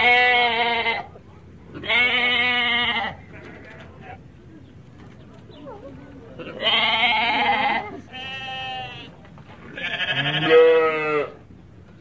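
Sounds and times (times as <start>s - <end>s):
sheep bleating: 0.0s - 1.1s, 1.8s - 4.2s, 6.4s - 9.1s, 9.7s - 11.4s.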